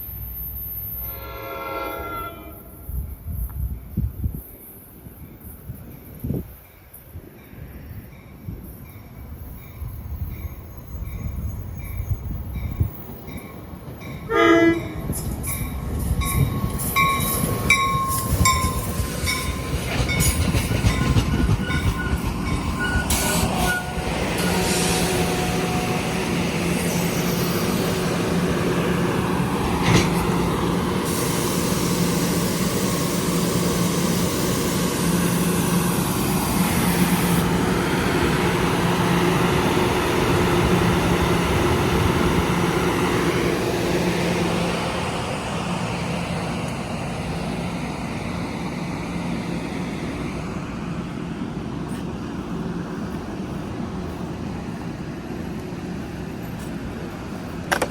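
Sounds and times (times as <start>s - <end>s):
train low hum: 0.0s - 57.9s
train horn blast: 1.0s - 2.9s, 14.3s - 15.0s, 23.1s - 26.5s
wheels clicking over rail joints: 56.3s - 57.9s.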